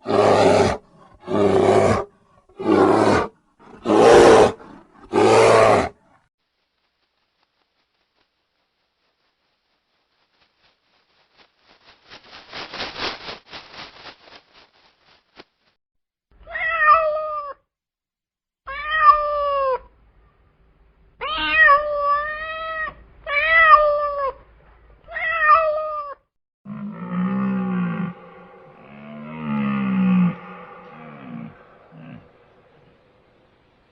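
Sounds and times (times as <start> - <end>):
cat meowing: 16.5 - 17.6, 18.7 - 19.8
deep drawn-out cat call: 26.8 - 32.9.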